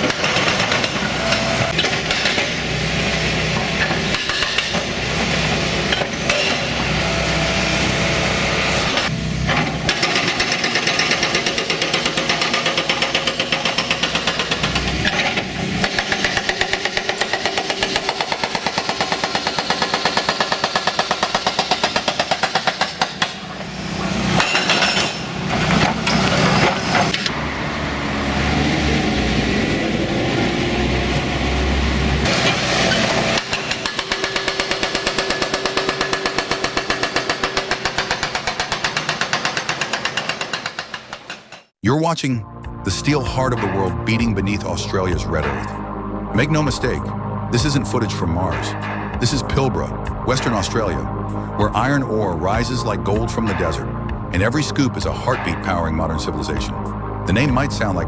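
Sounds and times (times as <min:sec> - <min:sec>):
demolition clatter: 0:00.0 - 0:07.2, 0:07.9 - 0:27.4
hydraulic breaker hammering concrete: 0:00.0 - 0:27.4, 0:32.2 - 0:41.7
excavator diesel engine: 0:00.0 - 0:41.3.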